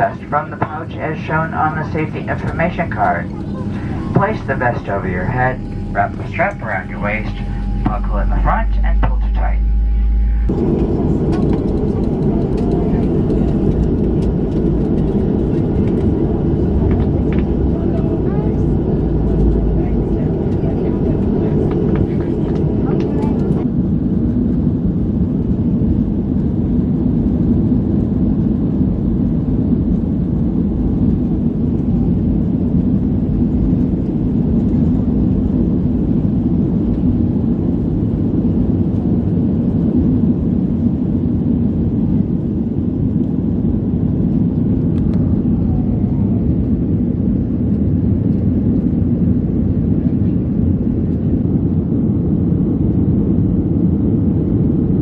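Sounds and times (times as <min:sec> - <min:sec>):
airflow noise: 0:00.0 - 0:23.7
jet engine rumble in cabin: 0:00.0 - 0:55.0.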